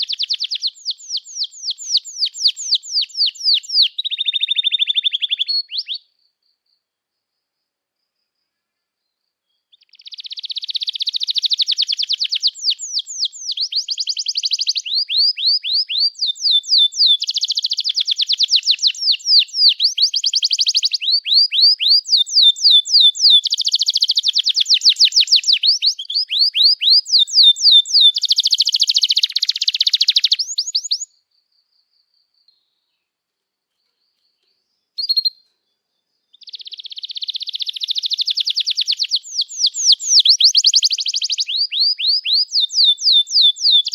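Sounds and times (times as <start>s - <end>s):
canary singing trills: 0.0s - 6.2s, 9.5s - 31.2s, 33.7s - 43.9s
short bird chirp: 33.7s - 43.9s.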